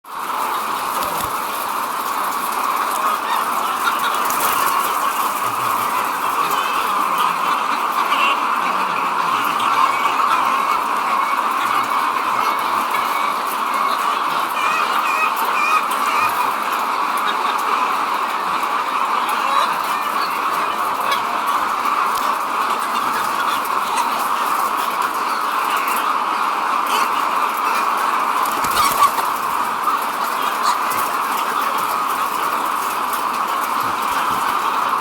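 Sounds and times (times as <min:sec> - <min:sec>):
chickens clucking: 0:00.1 - 0:35.0.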